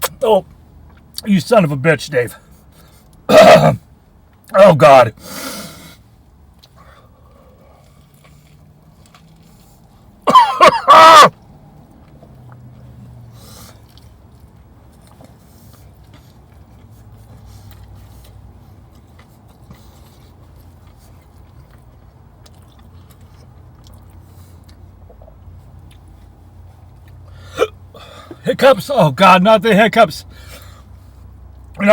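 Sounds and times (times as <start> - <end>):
hiccup: 3.3 - 3.8, 10.3 - 11.4
man crying out in pain: 3.3 - 3.8, 10.3 - 11.3.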